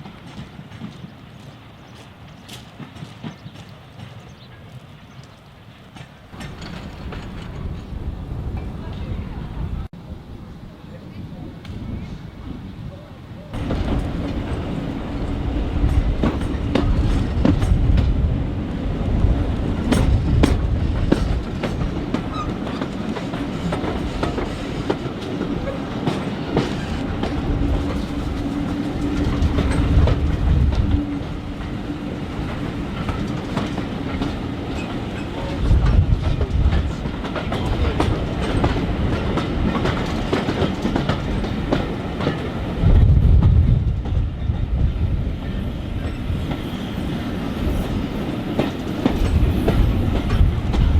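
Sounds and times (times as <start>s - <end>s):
train wheels clicking on rail joints: 0.0s - 9.1s, 13.6s - 50.9s.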